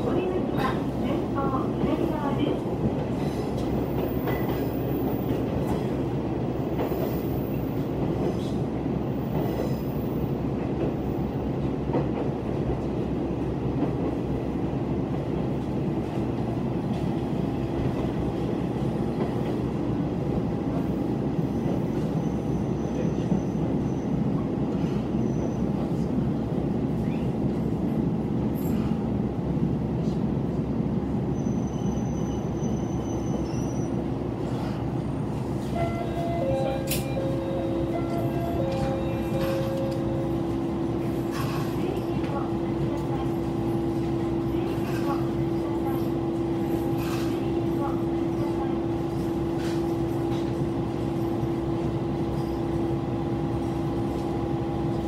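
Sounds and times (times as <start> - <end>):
diesel railcar engine rumble: 0.0 - 55.0
rail-joint clicks: 35.6 - 43.2, 43.9 - 48.0, 49.1 - 50.6.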